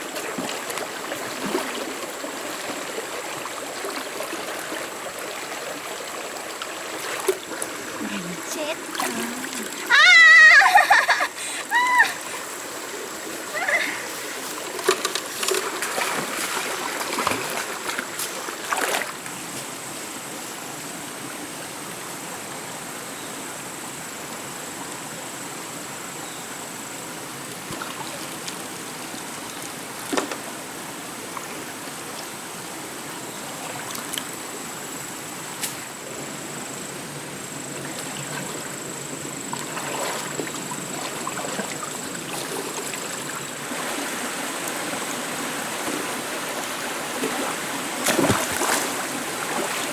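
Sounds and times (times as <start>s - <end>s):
stream water flowing: 0.0s - 49.9s
sharp splashes or knocks: 47.2s - 49.9s.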